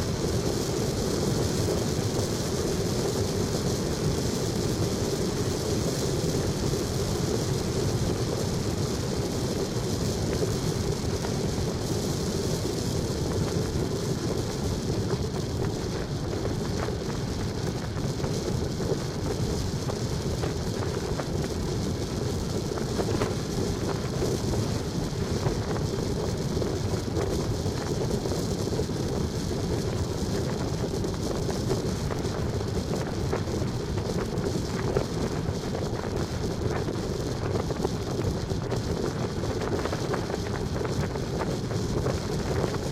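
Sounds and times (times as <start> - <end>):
vehicle road and wind noise: 0.0 - 42.9.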